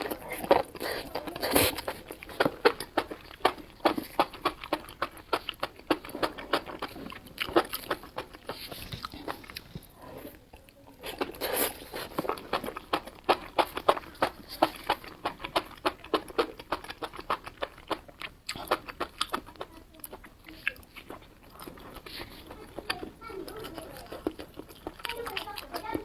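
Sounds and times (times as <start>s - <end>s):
person chewing and crunching: 0.0s - 26.0s.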